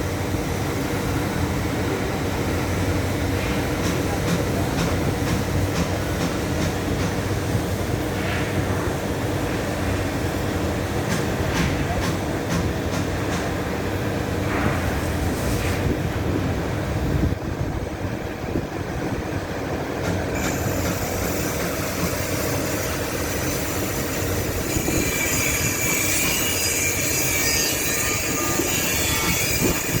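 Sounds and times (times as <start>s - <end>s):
welding arc hissing: 20.4s - 30.0s.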